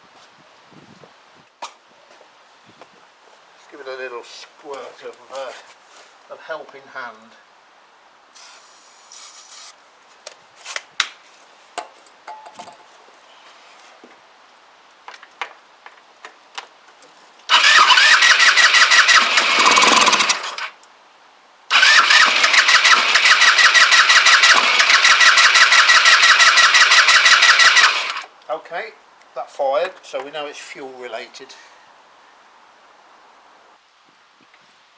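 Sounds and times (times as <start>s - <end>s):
electric starter cranking engine: 17.5s - 20.7s, 21.7s - 28.3s
scooter engine catching: 17.5s - 20.7s, 21.7s - 28.3s.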